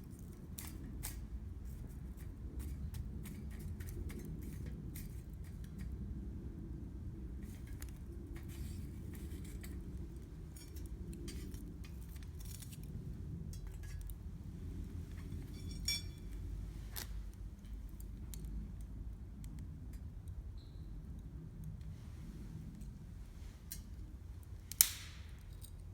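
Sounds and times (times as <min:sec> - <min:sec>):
sharp metallic clink: 0:15.5 - 0:16.3
campfire crackling: 0:21.6 - 0:25.6.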